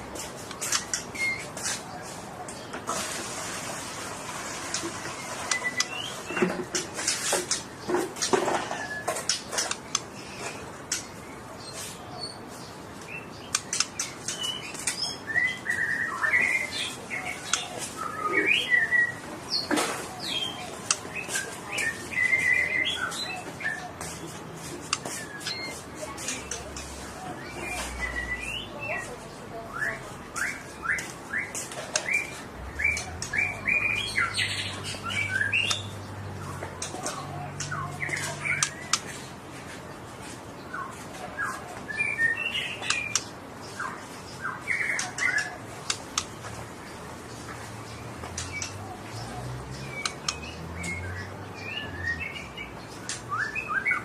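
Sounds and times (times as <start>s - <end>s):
songbird chirping: 4.2s - 54.0s
sharp clicks: 13.5s - 15.0s.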